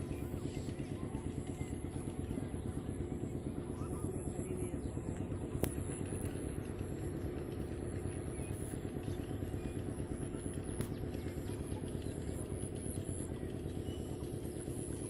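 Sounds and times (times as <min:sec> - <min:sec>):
small engine running: 0:00.0 - 0:15.0
sharp click: 0:05.6 - 0:06.0.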